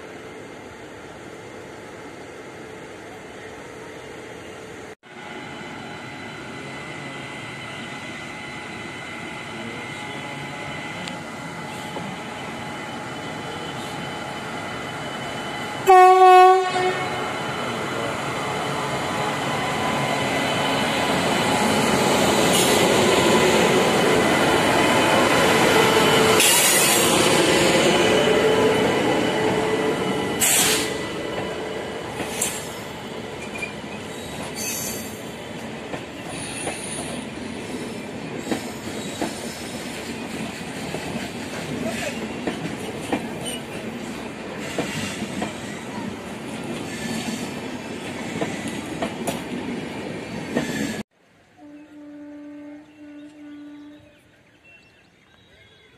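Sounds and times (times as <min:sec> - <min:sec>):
locomotive horn: 0:15.8 - 0:17.4, 0:51.6 - 0:54.2.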